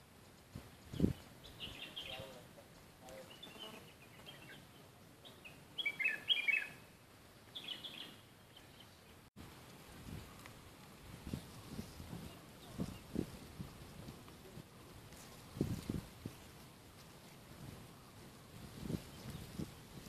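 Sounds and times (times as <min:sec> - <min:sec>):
small bird chirping: 0:00.7 - 0:02.4, 0:03.0 - 0:06.8, 0:07.5 - 0:09.2.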